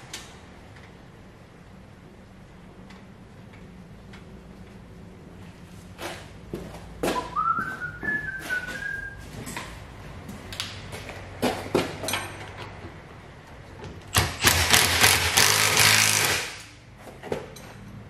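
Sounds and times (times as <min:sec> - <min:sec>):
person whistling: 0:07.1 - 0:09.2.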